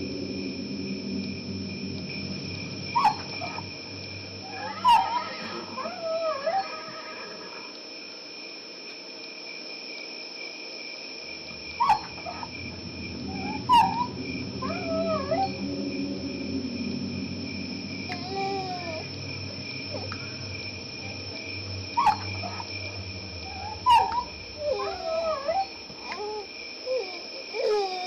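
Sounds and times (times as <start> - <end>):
low droning hum: 0.0 - 6.1, 11.2 - 27.0
crickets chirping: 0.0 - 28.0
dogs whining and yelping: 3.0 - 3.7, 4.5 - 7.0, 11.8 - 12.5, 13.4 - 15.7, 22.0 - 22.7, 23.5 - 28.0.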